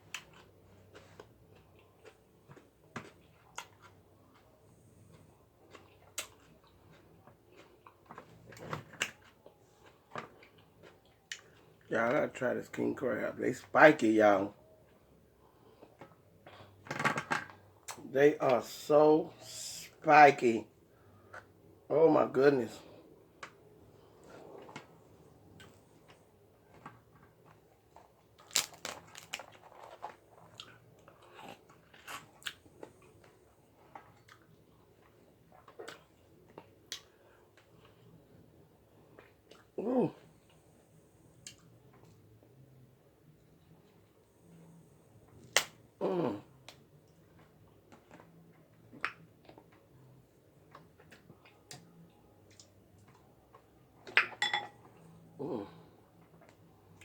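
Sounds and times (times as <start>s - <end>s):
chewing: 0.0s - 11.9s, 22.9s - 42.6s
crab shells cracking: 28.4s - 30.1s.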